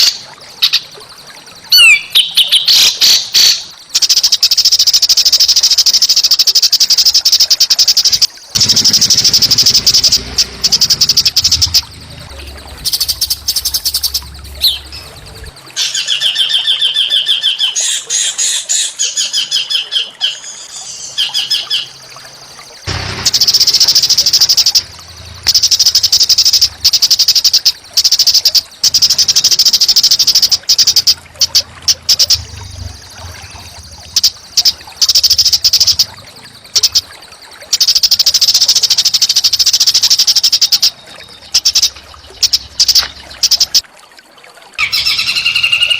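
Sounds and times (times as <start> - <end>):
songbirds trilling: 0.0 - 4.6, 7.9 - 43.8, 44.8 - 45.9
whistled bird notes: 0.6 - 4.5, 7.8 - 43.8, 44.8 - 45.9.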